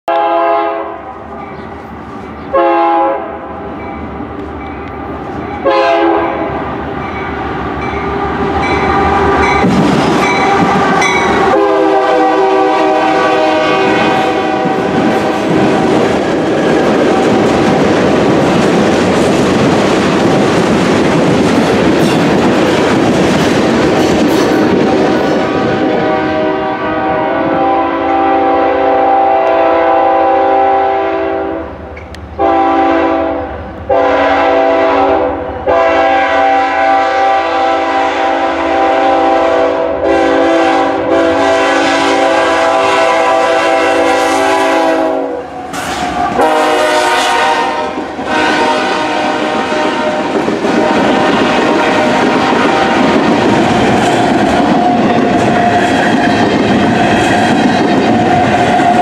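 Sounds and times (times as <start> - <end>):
locomotive air horn blasts: 0.1 - 1.1, 2.5 - 3.5, 5.6 - 6.6, 10.2 - 15.7, 25.4 - 31.8, 32.4 - 53.2
train rolling past: 0.1 - 59.0.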